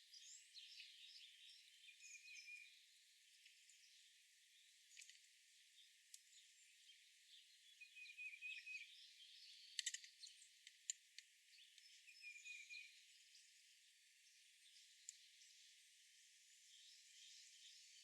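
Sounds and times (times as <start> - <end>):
bird chirps and trills: 0.0 - 2.8, 5.8 - 10.5, 11.5 - 13.6
faint outdoor hiss: 0.0 - 18.0.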